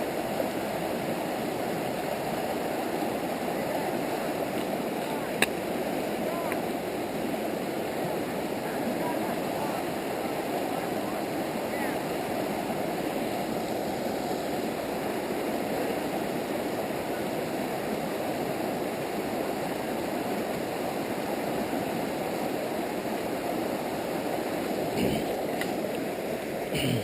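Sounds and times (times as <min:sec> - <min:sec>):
river rushing over rocks: 0:00.0 - 0:27.0.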